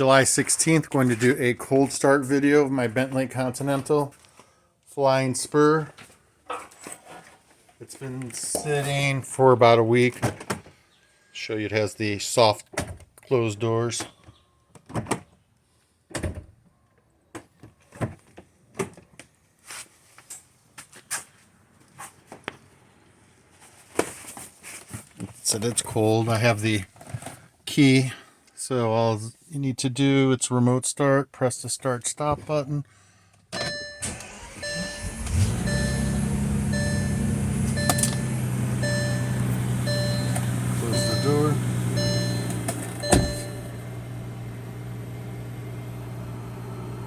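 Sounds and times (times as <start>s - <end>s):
car warning chime: 33.6s - 44.4s
car engine starting and idling: 33.6s - 47.0s
car door thunk: 40.2s - 43.8s.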